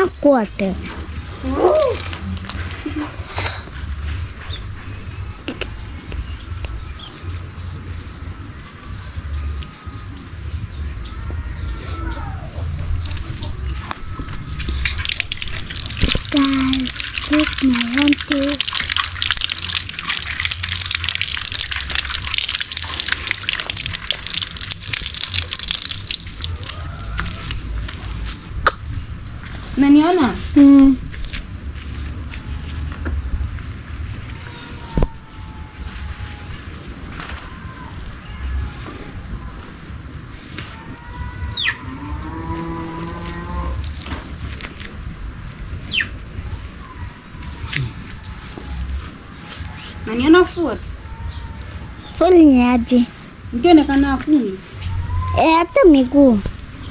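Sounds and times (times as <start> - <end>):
steady low rumble: 0.0 - 34.5, 43.4 - 49.8
water splashing and dripping: 0.0 - 56.9
cow mooing: 41.8 - 43.8.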